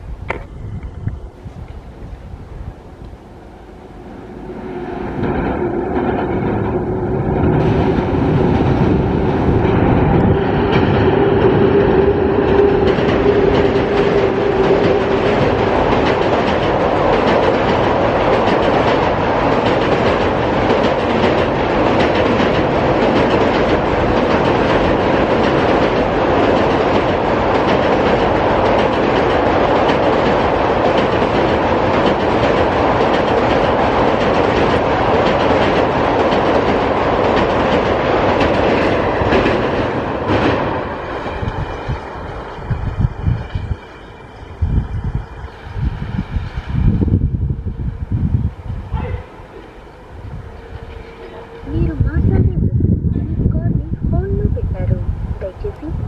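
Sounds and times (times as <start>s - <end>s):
train wheels clattering over rail joints: 5.2s - 44.5s.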